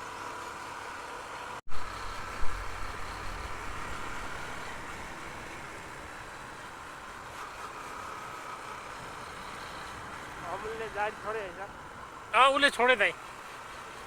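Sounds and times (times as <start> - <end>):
motorcycle engine riding: 1.7 - 7.3
wind rumbling on microphone: 1.7 - 7.3.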